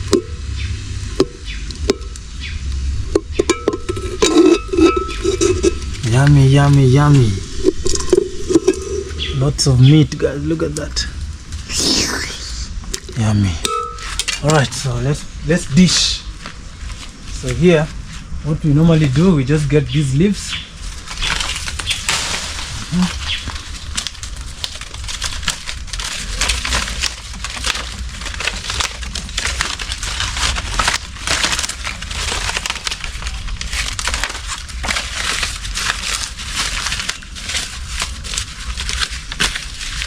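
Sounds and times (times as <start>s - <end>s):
leaves being crumpled: 0.0s - 40.0s.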